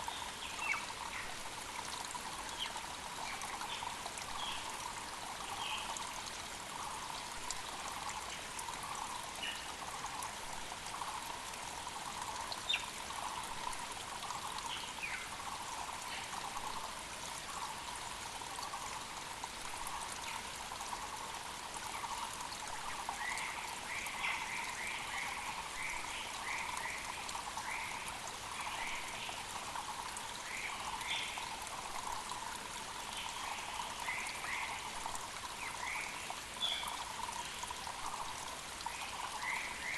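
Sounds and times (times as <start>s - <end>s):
creek running: 0.0s - 39.9s.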